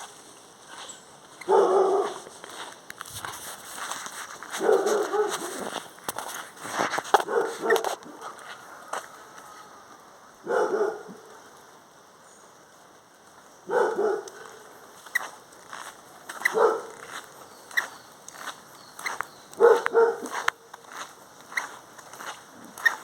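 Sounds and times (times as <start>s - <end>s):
dog barking: 1.4s - 2.2s, 4.6s - 5.7s, 7.2s - 8.4s, 10.4s - 11.2s, 13.7s - 14.6s, 16.4s - 17.1s, 19.6s - 20.5s.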